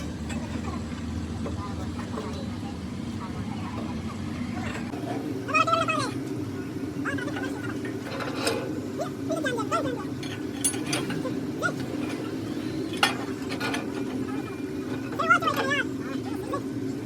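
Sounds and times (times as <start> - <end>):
faint voices: 0.0 - 17.0
low machine hum: 0.0 - 17.0
metal tools clinking on metal: 7.1 - 8.9, 9.6 - 16.4.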